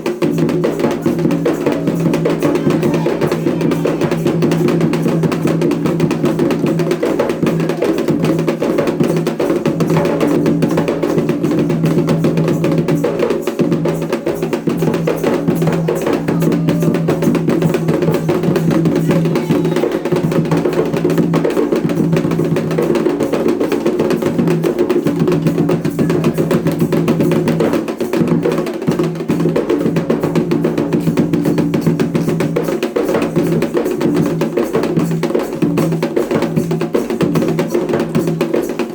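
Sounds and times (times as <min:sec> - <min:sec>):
hand drums playing fast rhythm: 0:00.0 - 0:38.9
sharp clacking beat: 0:01.1 - 0:06.8.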